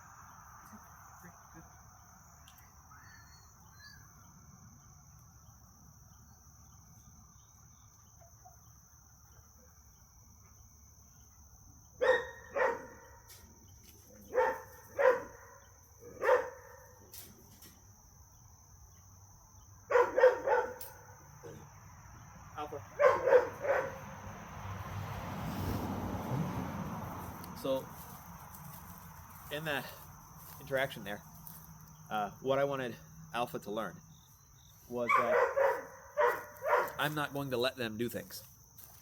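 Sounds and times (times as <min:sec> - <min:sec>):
high insect drone: 0:00.0 - 0:39.0
dog barking: 0:12.0 - 0:13.3, 0:14.2 - 0:17.0, 0:19.9 - 0:21.2, 0:23.0 - 0:24.1, 0:35.0 - 0:37.1.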